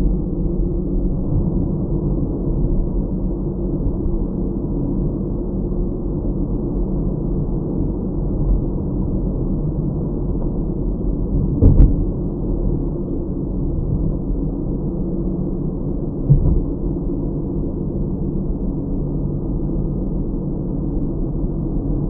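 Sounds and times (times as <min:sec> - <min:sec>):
car road and engine hum: 0:00.0 - 0:22.0
thump inside car: 0:11.6 - 0:12.1, 0:16.2 - 0:16.8.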